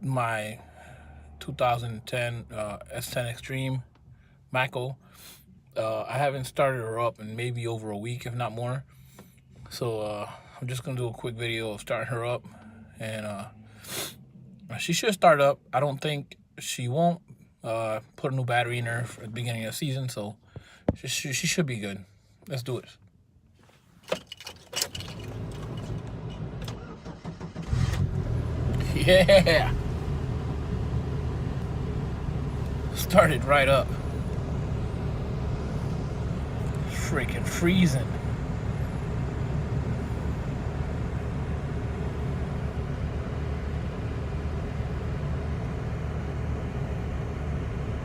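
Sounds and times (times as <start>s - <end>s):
pickup engine running: 24.9s - 48.0s.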